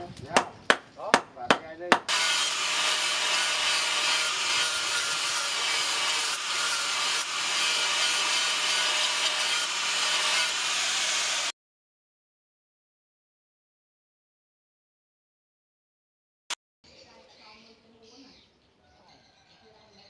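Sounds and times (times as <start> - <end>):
power tool grinding: 2.1 - 11.5.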